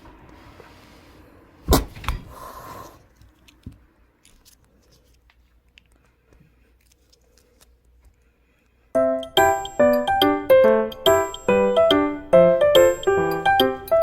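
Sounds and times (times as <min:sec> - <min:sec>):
sharp thumps: 0:01.7 - 0:02.4
cat hissing: 0:01.7 - 0:03.1.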